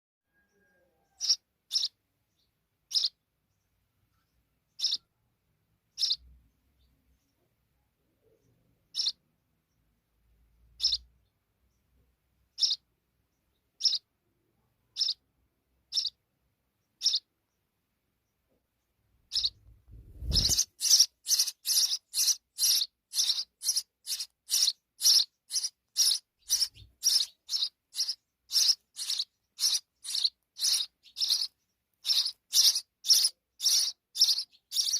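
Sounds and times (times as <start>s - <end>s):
sparrow chirping: 0.3s - 34.9s.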